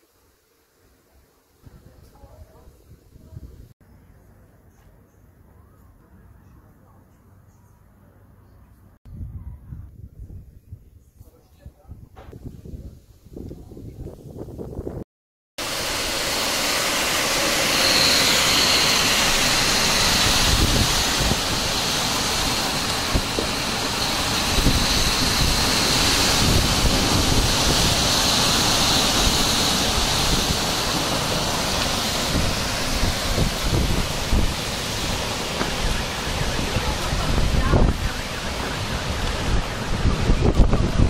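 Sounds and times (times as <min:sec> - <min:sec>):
heavy rain pouring: 0:15.6 - 0:41.0.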